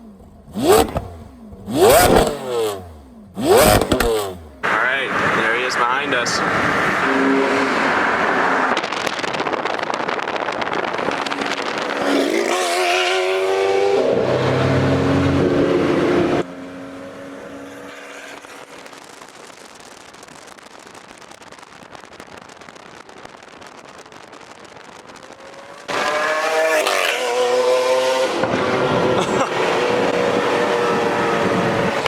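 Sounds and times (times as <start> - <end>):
car engine accelerating hard: 0.5 - 9.2, 10.9 - 19.1, 25.4 - 32.0.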